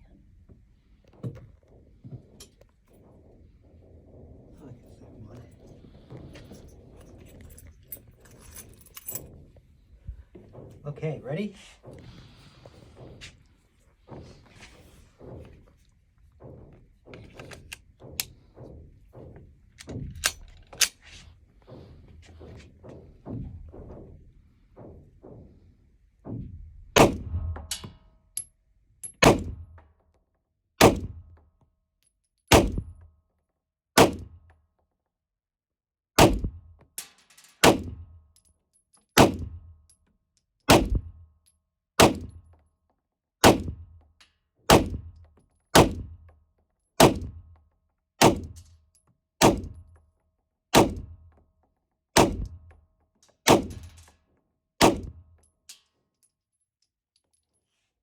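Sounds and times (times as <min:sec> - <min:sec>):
pistol shots: 0:27.0 - 0:27.6, 0:29.2 - 0:29.6, 0:30.8 - 0:31.2, 0:32.5 - 0:32.9, 0:34.0 - 0:34.3, 0:36.2 - 0:36.6, 0:37.6 - 0:38.0, 0:39.2 - 0:39.5, 0:40.7 - 0:41.1, 0:42.0 - 0:42.3, 0:43.4 - 0:43.8, 0:45.8 - 0:46.0, 0:50.8 - 0:51.1, 0:54.8 - 0:55.1.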